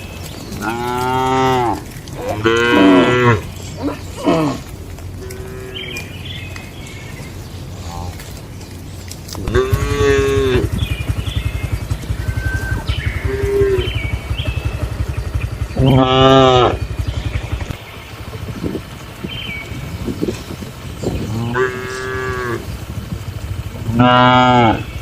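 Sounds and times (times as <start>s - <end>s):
low rhythmic rumble: 0.0s - 25.0s
cow mooing: 0.5s - 6.2s, 9.3s - 10.8s, 12.1s - 14.3s, 15.8s - 17.0s, 21.2s - 25.0s.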